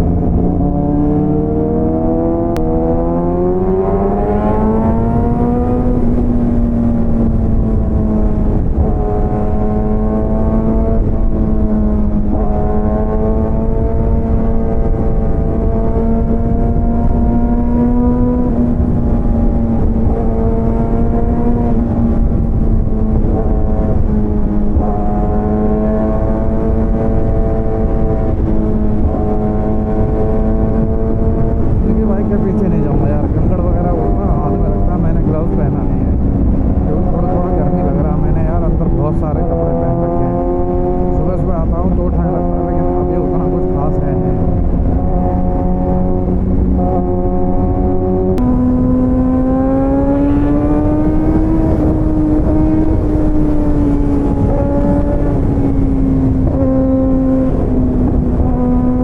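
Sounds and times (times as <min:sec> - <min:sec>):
motorcycle engine accelerating: 0:00.0 - 0:59.0
wind and road noise: 0:00.0 - 0:59.0.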